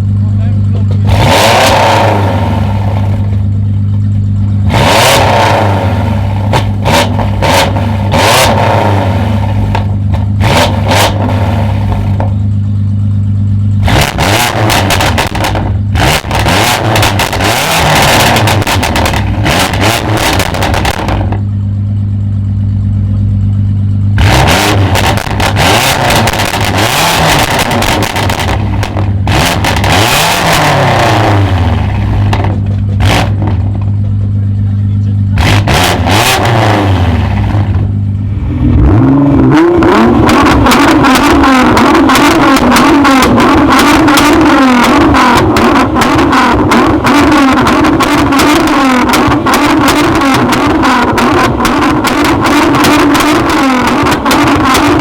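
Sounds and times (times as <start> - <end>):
car engine revving: 0.0 - 55.0
exhaust pops crackling: 6.2 - 12.8, 14.0 - 21.6, 24.2 - 36.4, 39.7 - 55.0.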